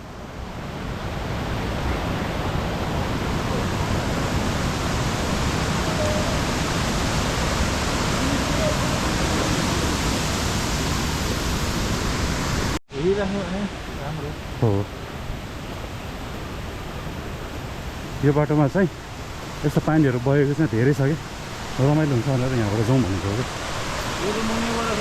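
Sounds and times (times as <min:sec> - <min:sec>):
rushing stream water: 0:00.0 - 0:25.0.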